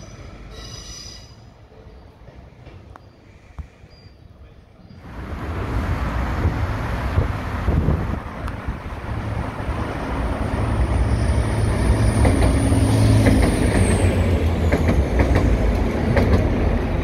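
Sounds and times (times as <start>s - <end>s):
train wheels clicking over joints: 11.5s - 17.0s.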